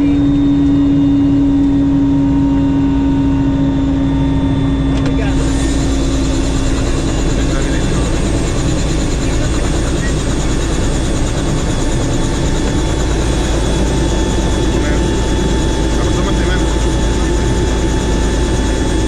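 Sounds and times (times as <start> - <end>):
helicopter in flight: 0.0 - 19.0.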